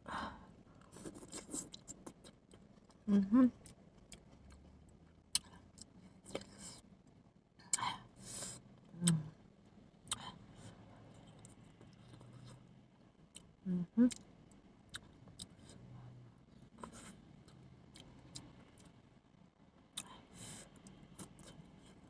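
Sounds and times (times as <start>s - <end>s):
low murmured vocal sounds: 13.5s - 14.2s.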